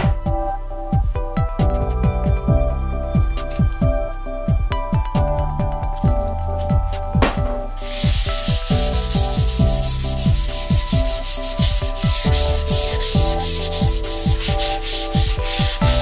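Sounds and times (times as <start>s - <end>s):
background music with beat: 0.0s - 16.0s
hand sanding scratchy strokes: 7.8s - 16.0s.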